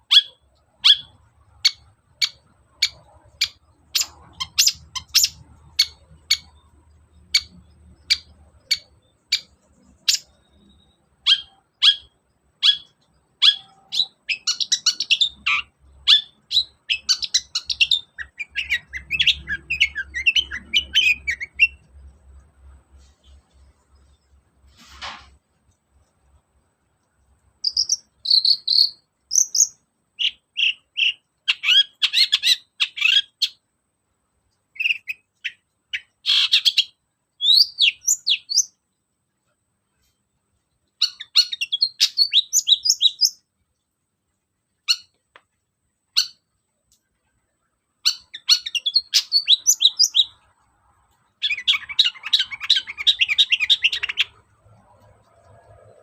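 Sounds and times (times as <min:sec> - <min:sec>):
bird chattering song: 0:00.0 - 0:21.9, 0:27.6 - 0:33.6, 0:34.8 - 0:38.8, 0:40.9 - 0:43.5, 0:44.8 - 0:45.2, 0:46.1 - 0:46.5, 0:48.0 - 0:50.6, 0:51.2 - 0:56.0.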